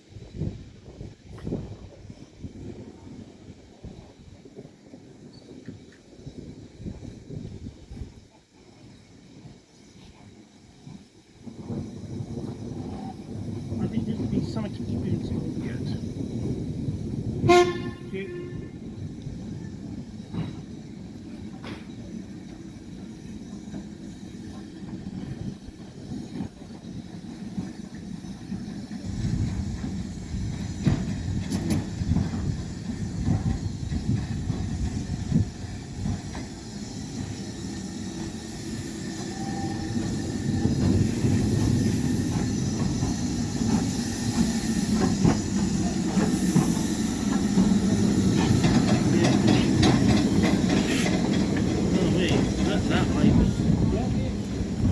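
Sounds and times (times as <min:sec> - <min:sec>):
steam locomotive rumbling and clanking: 0:00.0 - 0:54.9.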